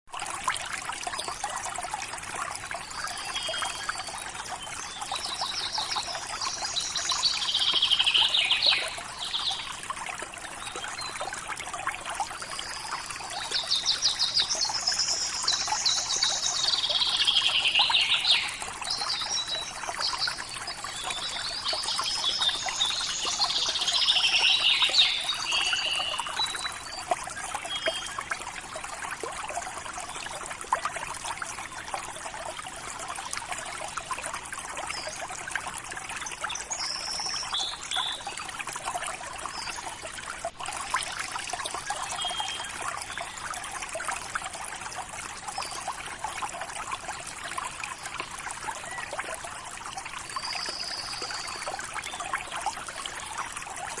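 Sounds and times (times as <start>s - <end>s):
river water babbling: 0.1s - 54.0s
songbird singing trills: 5.0s - 9.6s, 12.8s - 27.0s, 36.6s - 38.3s.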